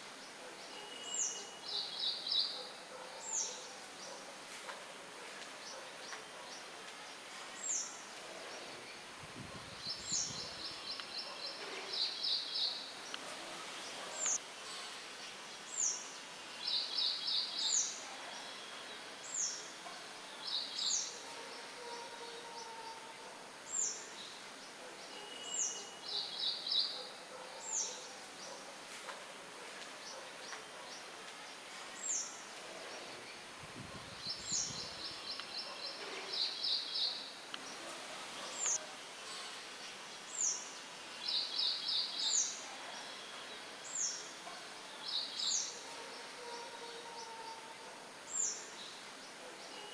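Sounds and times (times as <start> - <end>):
wind rustling: 7.5 - 17.8, 31.4 - 42.6
songbirds calling: 30.0 - 38.8.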